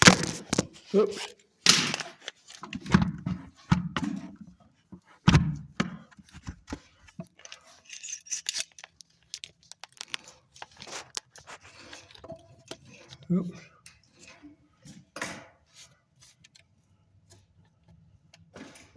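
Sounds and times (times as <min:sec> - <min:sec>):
light clicks and scraping: 0:06.1 - 0:18.9.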